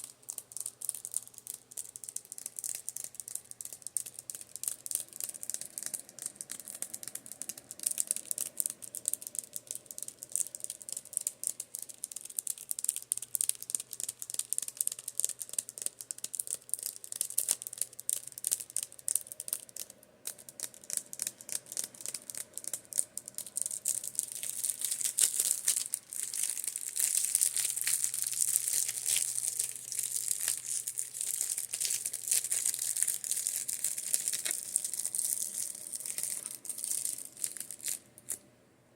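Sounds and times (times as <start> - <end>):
tapping and scratching on brushes: 0.0 - 38.4
electric fan hum: 18.3 - 38.9.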